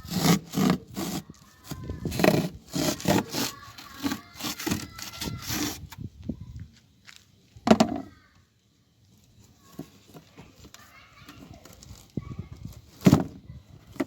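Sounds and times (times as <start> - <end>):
rough scraping strokes: 0.0 - 6.0.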